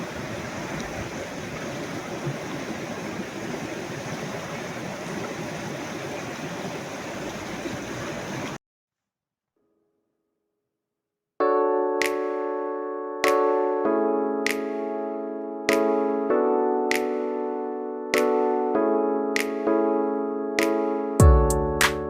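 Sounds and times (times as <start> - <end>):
river rushing: 0.0 - 8.6.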